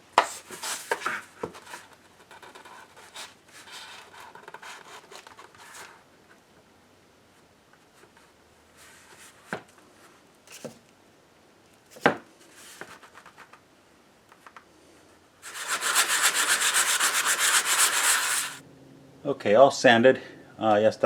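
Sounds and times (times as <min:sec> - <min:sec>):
sanding rasp on filler: 0:15.4 - 0:18.6.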